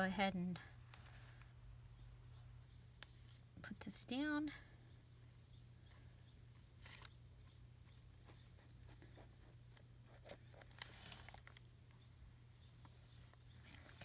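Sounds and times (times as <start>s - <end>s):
paper rustling: 6.7s - 7.5s, 8.2s - 11.7s.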